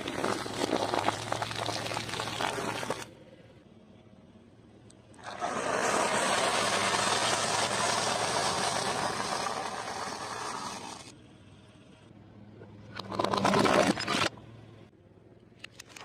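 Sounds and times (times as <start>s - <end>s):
car tyre crushing food: 0.0s - 3.0s.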